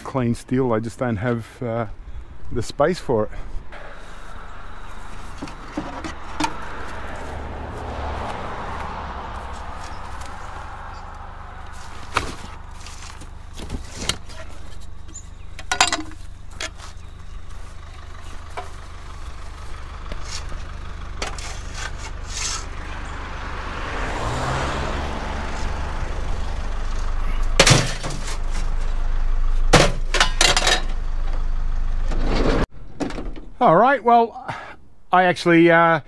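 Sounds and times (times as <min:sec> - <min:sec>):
road noise: 0:00.0 - 0:36.0
van engine running: 0:00.8 - 0:33.6
clunks and rattles: 0:05.2 - 0:07.1, 0:11.9 - 0:17.3, 0:27.4 - 0:29.0, 0:29.6 - 0:33.6.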